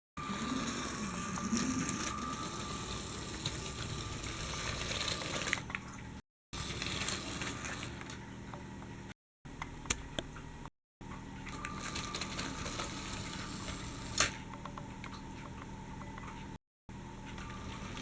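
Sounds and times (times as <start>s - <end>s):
toy train motor running: 0.2s - 5.6s, 6.6s - 8.1s.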